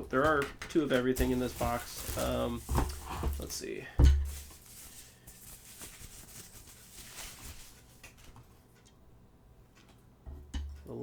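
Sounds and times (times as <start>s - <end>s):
packaging rustling: 1.0s - 8.5s.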